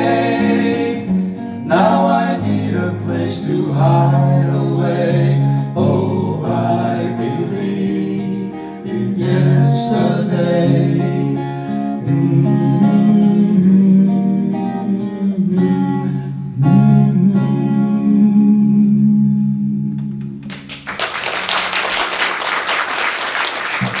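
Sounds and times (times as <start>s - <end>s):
guitar chords: 0.0s - 20.8s
audience applause: 20.4s - 24.0s.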